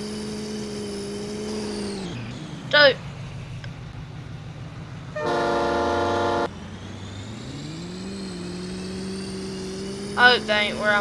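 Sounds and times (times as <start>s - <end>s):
truck engine humming: 0.0s - 11.0s
vehicle horn blast: 5.2s - 6.5s.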